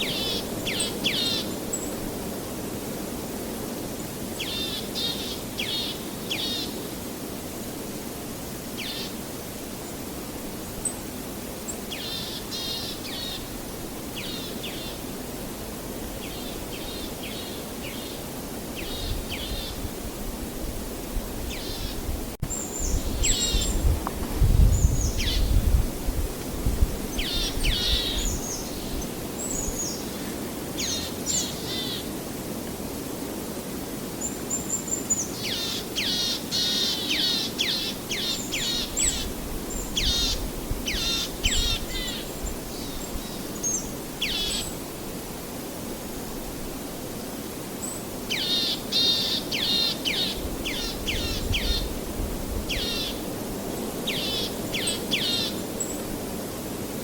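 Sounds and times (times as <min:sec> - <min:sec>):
birds calling: 0:00.0 - 0:02.0, 0:27.1 - 0:32.1, 0:34.2 - 0:44.8, 0:48.3 - 0:52.0, 0:52.7 - 0:53.3
outdoor noise: 0:00.0 - 0:57.0.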